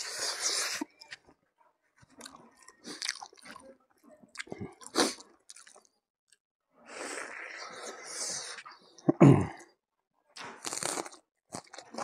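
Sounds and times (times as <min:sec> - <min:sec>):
wet chewing: 0:02.0 - 0:03.7, 0:04.3 - 0:05.9.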